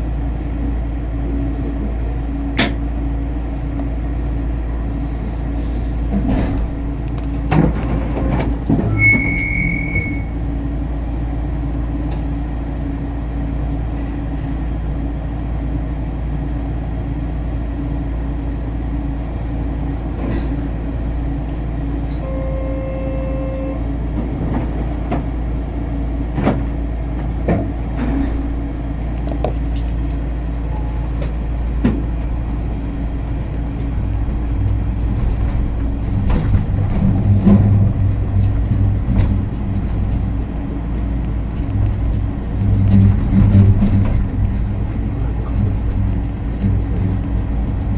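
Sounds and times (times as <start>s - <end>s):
people-mover car rumbling: 0.0s - 47.9s
brief steady tone: 8.9s - 10.4s, 22.2s - 23.9s
short high beep: 8.9s - 10.4s, 22.2s - 23.8s.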